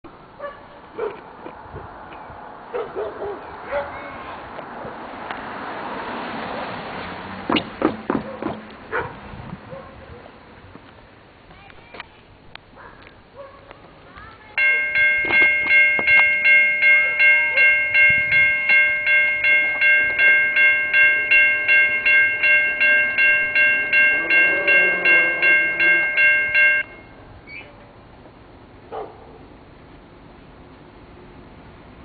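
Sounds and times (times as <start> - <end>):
railroad crossing bell ringing: 14.6 - 27.3.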